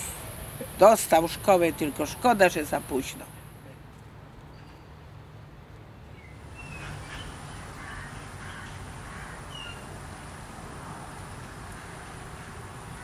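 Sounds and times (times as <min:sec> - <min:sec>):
birds chirping: 0:06.1 - 0:10.0.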